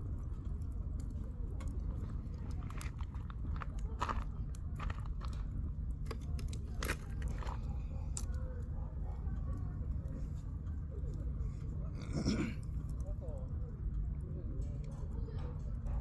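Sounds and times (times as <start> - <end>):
wood fire crackling: 0.0 - 10.2.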